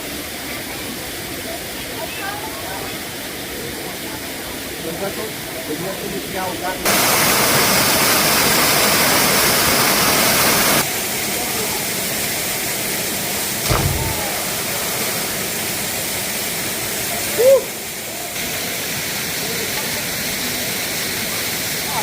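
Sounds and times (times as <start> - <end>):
waterfall rushing water: 0.0 - 22.0
short dull thud: 13.6 - 15.3.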